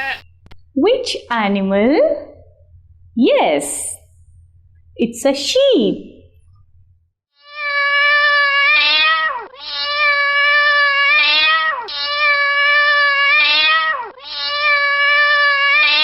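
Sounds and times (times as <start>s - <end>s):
cat meowing: 0.0s - 0.2s, 7.4s - 16.0s.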